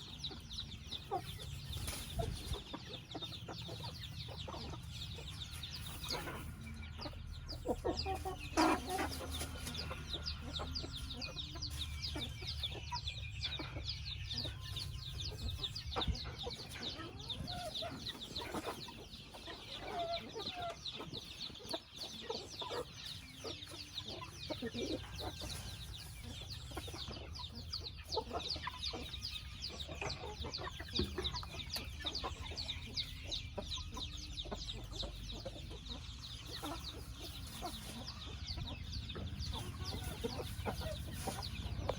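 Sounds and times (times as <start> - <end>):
chickens clucking: 0.0 - 41.9.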